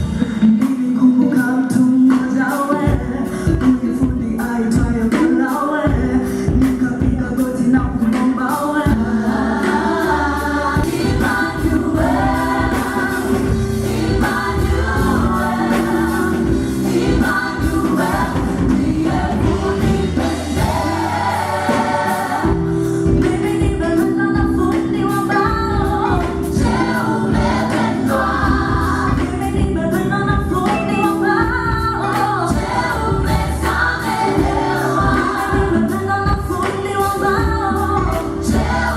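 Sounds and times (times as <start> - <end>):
gospel band playing: 0.0 - 38.9
voices singing together: 8.6 - 38.9.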